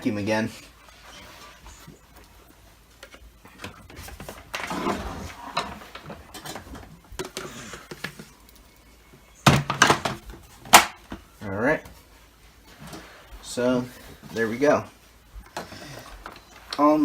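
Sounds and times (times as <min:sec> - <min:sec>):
plastic parts clicking and rattling: 0:02.9 - 0:08.8, 0:09.4 - 0:11.2.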